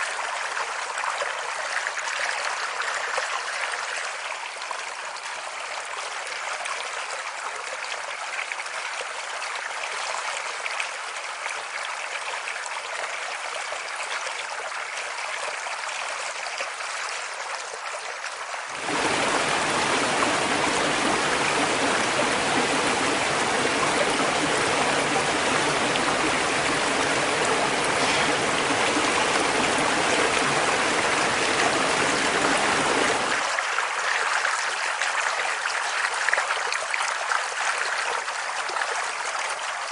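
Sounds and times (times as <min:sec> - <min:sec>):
stream water rushing: 0:18.6 - 0:34.8.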